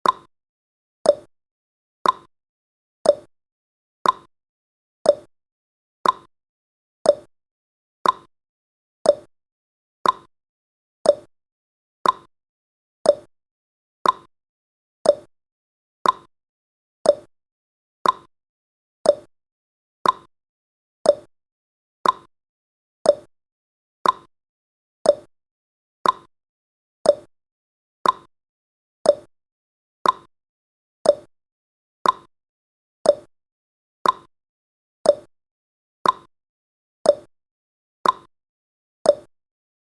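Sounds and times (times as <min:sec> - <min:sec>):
timer ticking: 0:00.0 - 0:00.3, 0:01.1 - 0:01.3, 0:02.0 - 0:02.3, 0:03.0 - 0:03.3, 0:04.0 - 0:04.3, 0:05.1 - 0:05.3, 0:06.0 - 0:06.3, 0:07.0 - 0:07.3, 0:08.0 - 0:08.3, 0:09.0 - 0:09.3, 0:10.0 - 0:10.3, 0:11.0 - 0:11.3, 0:12.0 - 0:12.3, 0:13.0 - 0:13.3, 0:14.0 - 0:14.3, 0:15.0 - 0:15.3, 0:16.0 - 0:16.3, 0:17.0 - 0:17.3, 0:18.0 - 0:18.3, 0:19.0 - 0:19.3, 0:20.0 - 0:20.3, 0:21.0 - 0:21.3, 0:22.0 - 0:22.3, 0:23.0 - 0:23.3, 0:24.0 - 0:24.3, 0:25.0 - 0:25.3, 0:26.0 - 0:26.3, 0:27.0 - 0:27.3, 0:28.0 - 0:28.3, 0:29.0 - 0:29.3, 0:30.0 - 0:30.3, 0:31.0 - 0:31.3, 0:32.0 - 0:32.3, 0:33.0 - 0:33.3, 0:34.0 - 0:34.3, 0:35.0 - 0:35.3, 0:36.0 - 0:36.3, 0:37.1 - 0:37.3, 0:38.0 - 0:38.3, 0:39.1 - 0:39.3.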